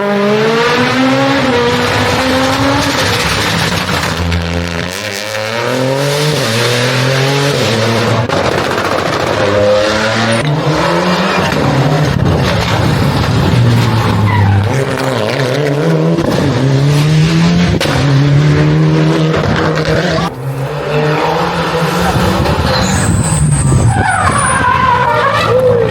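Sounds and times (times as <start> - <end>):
rally car engines revving: 0.0 - 25.9
tyre squeal: 13.9 - 14.8, 22.4 - 25.9.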